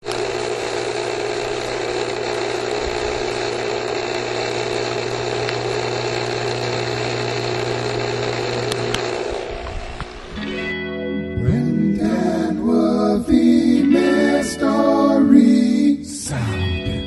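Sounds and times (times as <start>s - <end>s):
machine motor humming: 0.0s - 10.4s.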